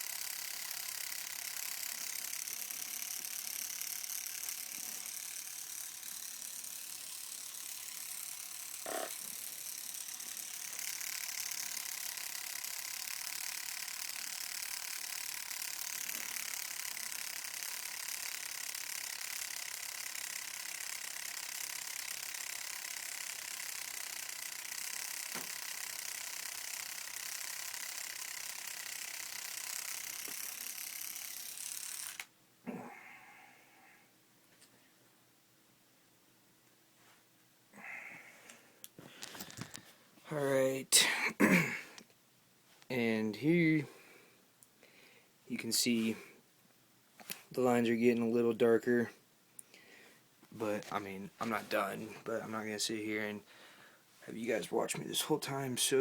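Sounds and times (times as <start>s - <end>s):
tattoo machine buzzing: 0.0s - 32.3s.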